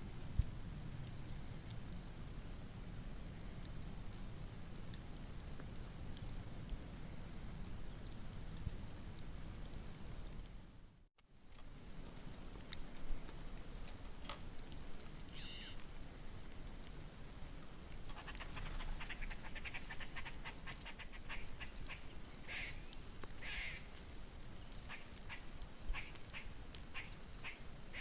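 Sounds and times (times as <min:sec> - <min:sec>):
faint clicks: 0:00.3 - 0:06.8, 0:18.0 - 0:22.2, 0:22.9 - 0:27.6
short bird calls: 0:15.3 - 0:15.8, 0:17.3 - 0:23.9.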